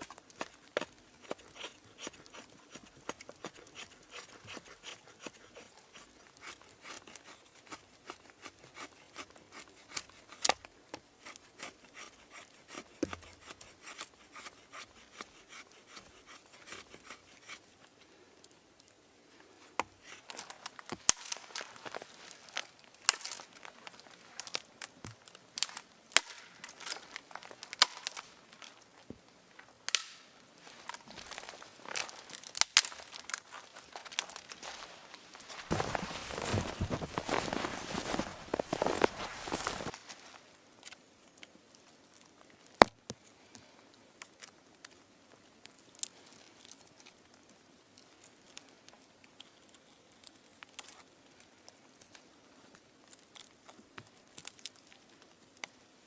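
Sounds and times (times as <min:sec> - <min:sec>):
crackling and crinkling: 0:00.0 - 0:56.0.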